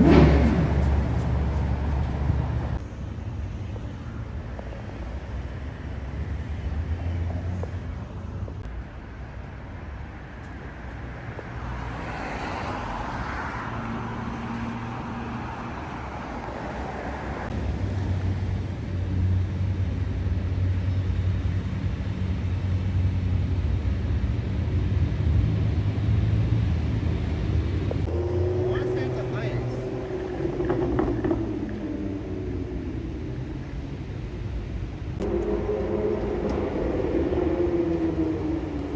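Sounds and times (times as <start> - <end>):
car passing: 0.0 - 38.9
traffic noise: 0.0 - 38.9.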